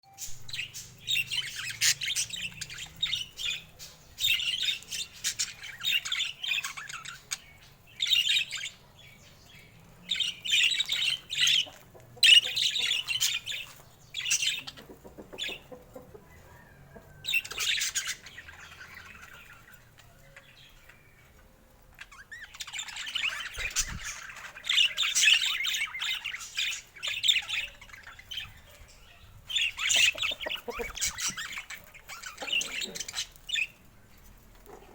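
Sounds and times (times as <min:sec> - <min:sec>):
budgerigars chattering: 0:10.2 - 0:16.1, 0:29.5 - 0:33.8.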